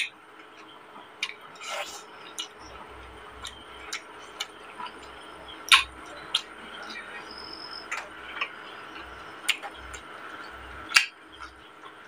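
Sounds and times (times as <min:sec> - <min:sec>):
wet chewing clicks and smacks: 0:00.4 - 0:01.5, 0:02.2 - 0:06.6, 0:07.8 - 0:10.1.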